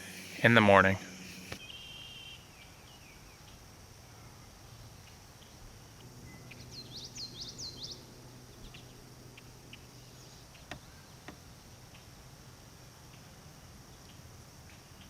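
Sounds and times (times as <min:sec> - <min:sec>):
sharp clicks: 0:00.0 - 0:01.6
faint low hum: 0:00.0 - 0:15.0
insects chorus: 0:00.0 - 0:15.0
high falling chirps: 0:06.0 - 0:12.0.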